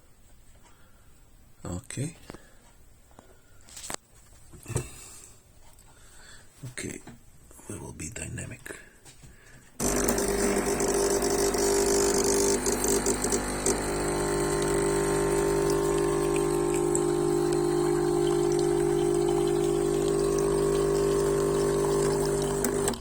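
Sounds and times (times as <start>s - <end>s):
espresso machine pump humming: 9.8s - 23.0s.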